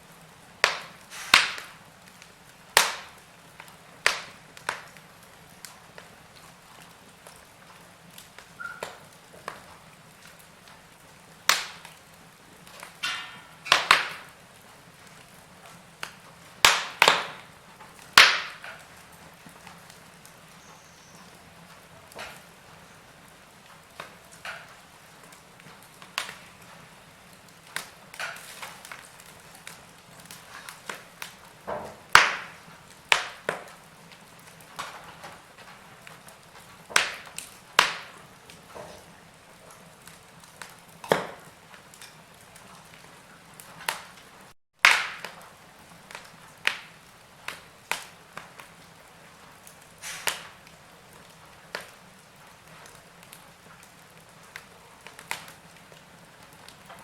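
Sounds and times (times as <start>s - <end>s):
faint steady hiss: 0.0s - 44.6s
wood fire crackling: 0.0s - 57.0s.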